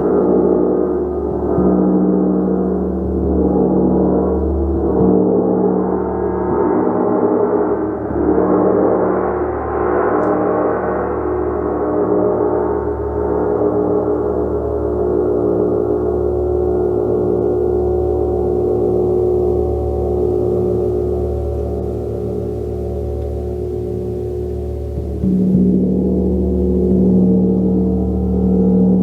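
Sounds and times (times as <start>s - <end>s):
gong ringing: 18.4s - 29.0s.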